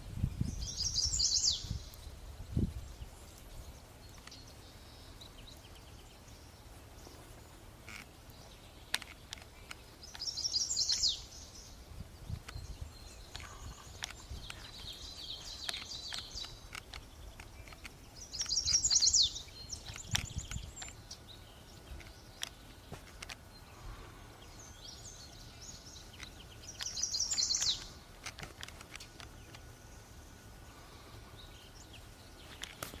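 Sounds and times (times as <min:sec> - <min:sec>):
soft high chirping: 0:03.0 - 0:28.1
faint clicks: 0:03.3 - 0:05.9, 0:07.0 - 0:11.2, 0:12.3 - 0:23.6, 0:25.6 - 0:29.8.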